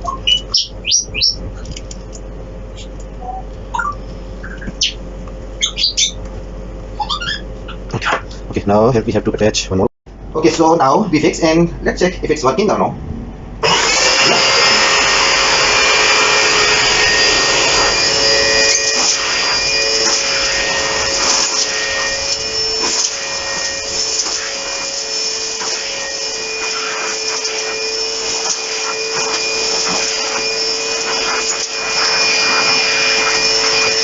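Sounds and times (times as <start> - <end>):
vacuum cleaner motor running: 0.0 - 8.9, 13.6 - 34.0.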